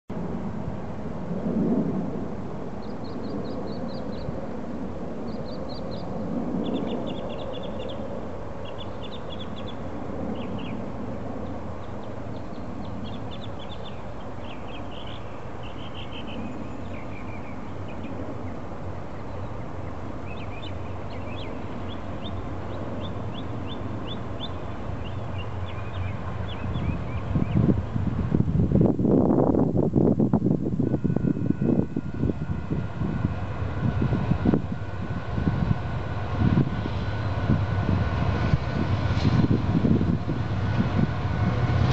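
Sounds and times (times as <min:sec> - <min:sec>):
steady low rumble: 0:00.1 - 0:41.9
small birds chirping: 0:05.3 - 0:10.8, 0:11.8 - 0:18.6, 0:19.2 - 0:27.7.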